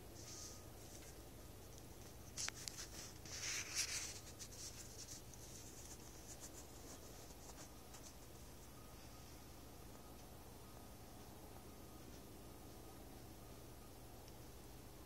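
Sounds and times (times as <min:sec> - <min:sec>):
steady low hum: 0:00.0 - 0:15.0
faint scratching and rustling: 0:00.1 - 0:09.4.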